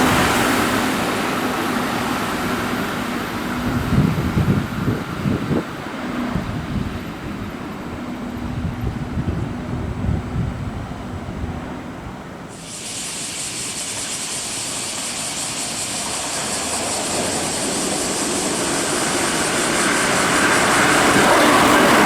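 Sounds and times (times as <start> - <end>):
electric train passing: 0.0 - 22.0.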